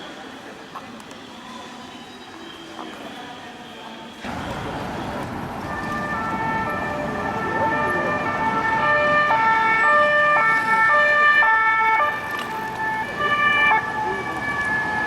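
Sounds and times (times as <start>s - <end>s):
city traffic rumble: 0.0s - 15.0s
two-tone police sirens: 4.2s - 15.0s.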